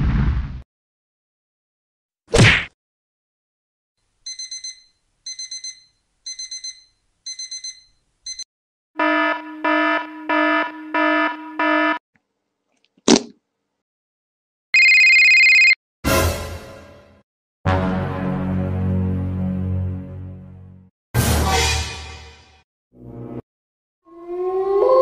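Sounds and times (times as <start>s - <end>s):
high alarm clock beeps: 4.3s - 12.0s, 14.8s - 15.8s
low electronic alarm tone: 9.0s - 12.0s.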